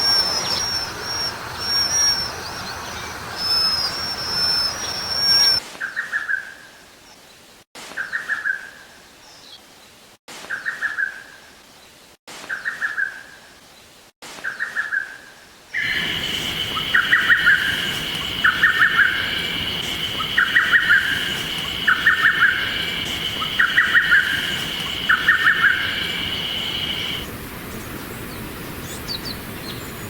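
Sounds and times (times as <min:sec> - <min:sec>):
background bird chorus: 0:00.0 - 0:30.0
high thin whistled bird notes: 0:15.8 - 0:27.2
short pulsed bird call: 0:15.8 - 0:27.2.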